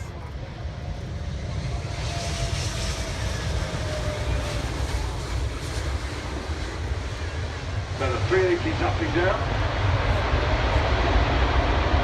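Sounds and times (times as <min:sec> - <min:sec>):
large aircraft engines rumbling: 0:00.0 - 0:12.0.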